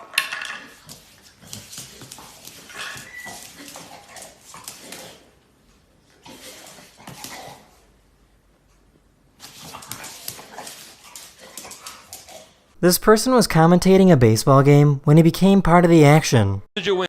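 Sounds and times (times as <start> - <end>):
dog whimpering and yipping: 2.7 - 4.3.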